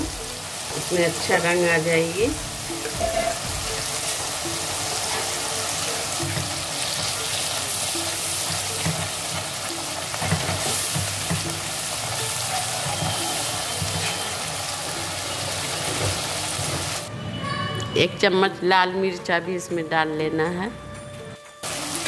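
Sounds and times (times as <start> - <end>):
paste sizzling in hot oil: 0.0 - 17.1.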